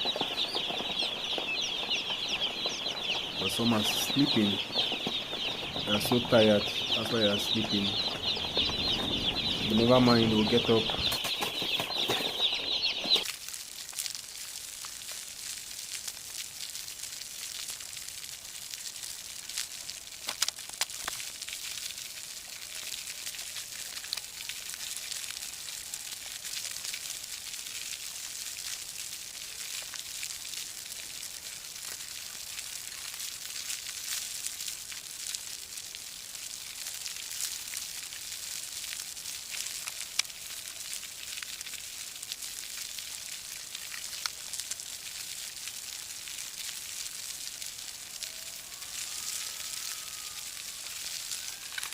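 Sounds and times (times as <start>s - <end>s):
chicks cheeping: 0.0s - 13.3s.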